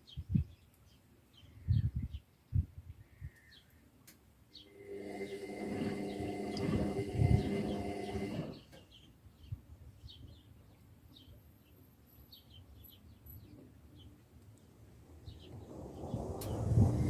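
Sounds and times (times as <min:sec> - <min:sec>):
faint bird chirps: 0:00.0 - 0:03.9
washing machine drum spinning: 0:04.7 - 0:08.6, 0:16.5 - 0:17.0
washing machine rising hum: 0:04.7 - 0:08.8, 0:15.7 - 0:17.0.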